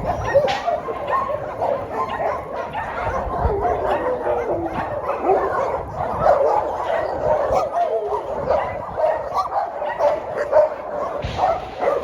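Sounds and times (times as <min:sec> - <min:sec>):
many dogs barking and whining: 0:00.0 - 0:12.0.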